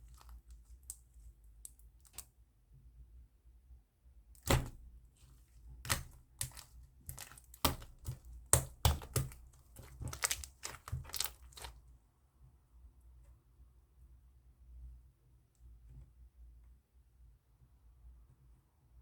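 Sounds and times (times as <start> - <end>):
slime popping and clicking: 5.9 - 11.7.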